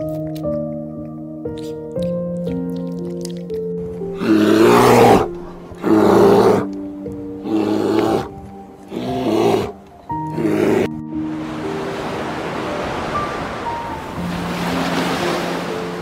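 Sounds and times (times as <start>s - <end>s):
background music: 0.0s - 16.0s
brown bear calling: 3.8s - 11.0s.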